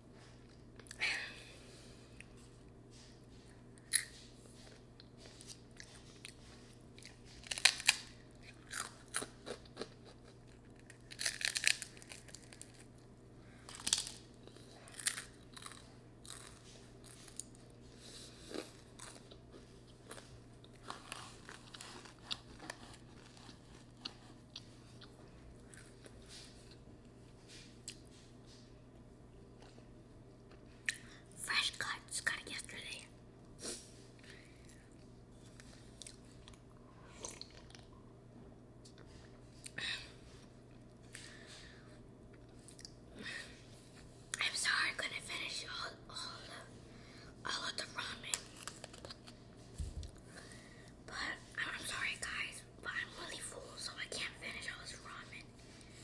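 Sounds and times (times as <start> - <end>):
faint low hum: 0.0 - 56.0
person chewing food: 3.3 - 13.0, 13.6 - 26.9, 29.6 - 31.1, 34.2 - 38.0.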